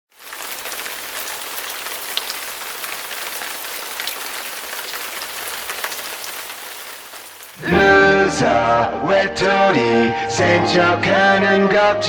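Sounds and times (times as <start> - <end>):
steady rain hiss: 0.1 - 7.7.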